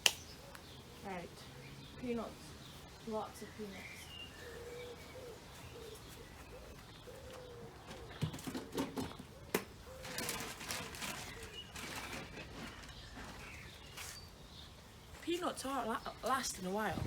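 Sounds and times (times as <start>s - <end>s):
pigeon cooing: 4.3s - 11.7s
rustling rattling noise: 6.7s - 14.3s.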